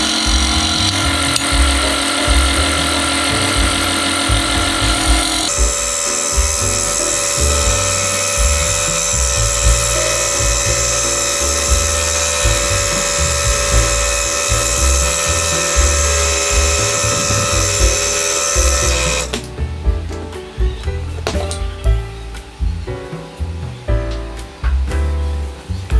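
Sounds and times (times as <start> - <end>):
rotary power tool whining: 0.0 - 19.5
background music with bass beat: 0.0 - 25.9.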